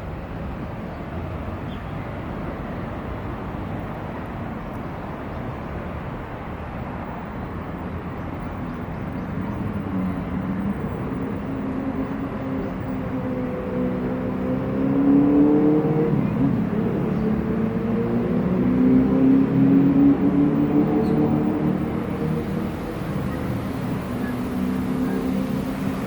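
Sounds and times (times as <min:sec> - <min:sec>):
vehicle rumble: 0:00.0 - 0:26.0
engine tone rising: 0:14.5 - 0:26.0.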